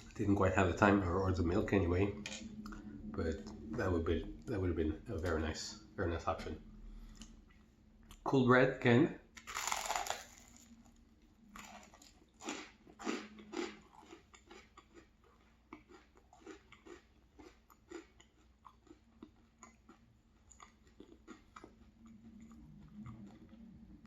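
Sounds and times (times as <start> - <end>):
crunchy bites of toast: 9.4 - 10.7, 11.6 - 21.8
chewing: 11.5 - 24.0.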